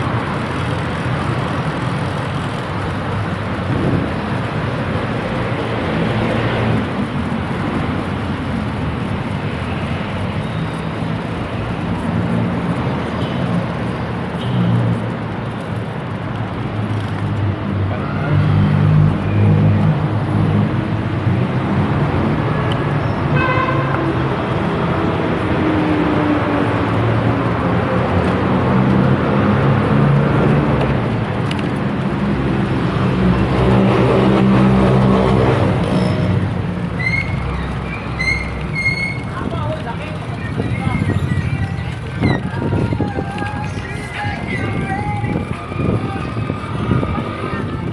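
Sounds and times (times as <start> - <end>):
passing traffic: 0.0 - 47.9
wind and road noise: 0.0 - 47.9.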